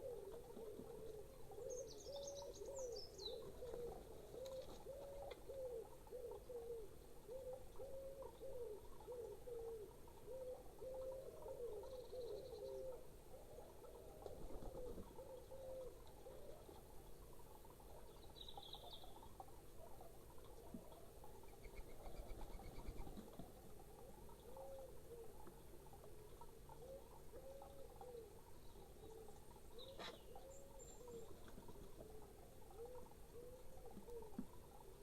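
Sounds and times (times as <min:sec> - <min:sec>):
dove cooing: 0:00.0 - 0:16.8, 0:19.8 - 0:25.5, 0:26.6 - 0:28.4, 0:29.0 - 0:34.8.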